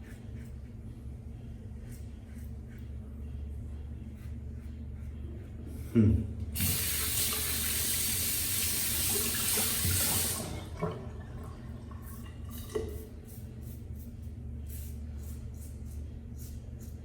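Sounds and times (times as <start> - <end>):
sink faucet running: 6.6 - 13.1.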